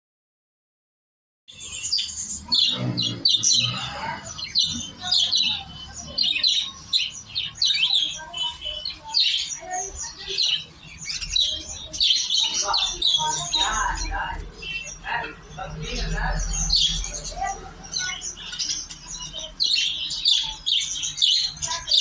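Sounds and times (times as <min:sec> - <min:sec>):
budgerigars chattering: 0:01.5 - 0:22.0.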